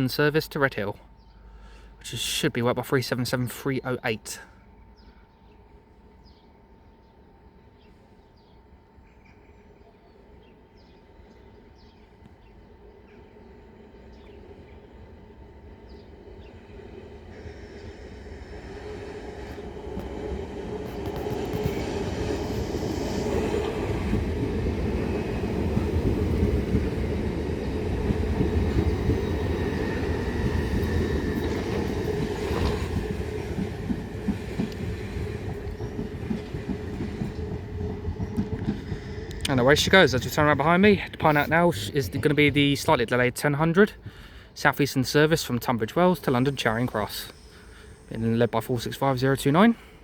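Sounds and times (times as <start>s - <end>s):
train wheels rumbling on rails: 15.6s - 43.2s.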